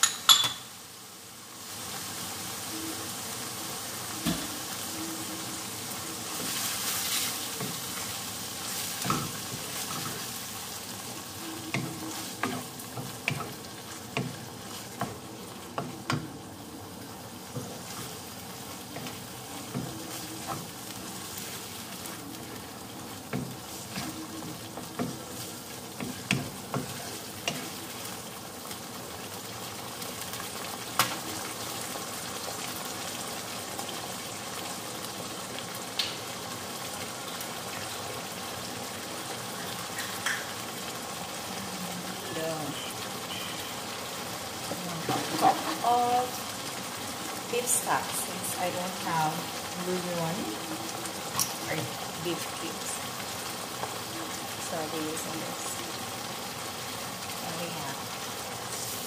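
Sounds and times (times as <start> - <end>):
meat sizzling in a frying pan: 0.0 - 59.0
wooden spoon scraping a pan: 6.2 - 10.4.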